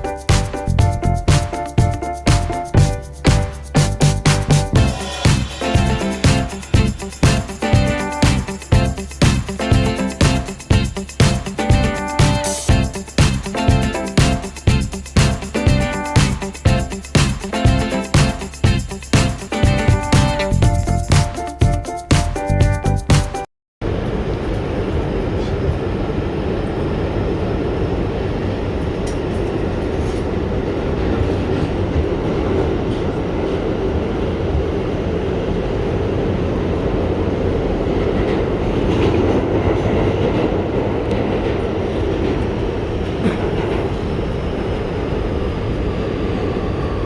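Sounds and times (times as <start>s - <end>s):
train wheels rumbling on rail: 23.8s - 47.0s.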